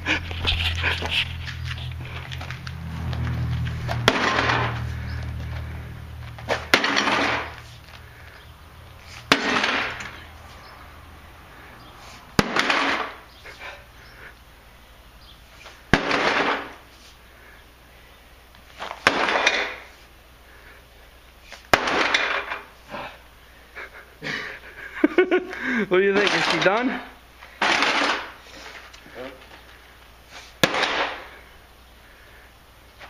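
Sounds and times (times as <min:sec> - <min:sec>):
low hum: 0:00.0 - 0:12.4
breaking glass and sheet metal rattle: 0:06.6 - 0:07.6, 0:09.3 - 0:10.2, 0:12.4 - 0:13.2, 0:21.8 - 0:22.7, 0:27.6 - 0:28.4.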